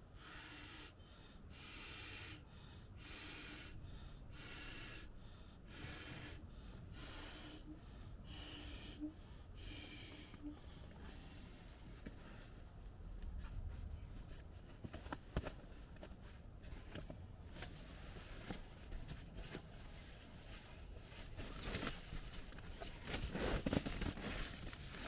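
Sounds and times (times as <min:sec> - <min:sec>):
person breathing: 0:00.0 - 0:12.7.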